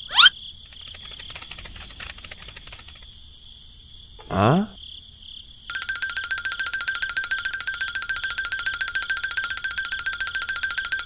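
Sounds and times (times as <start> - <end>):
cartoon rising whistle: 0.0 - 0.3
insect chirping: 0.0 - 11.0
faint rapid ticking: 0.6 - 3.1.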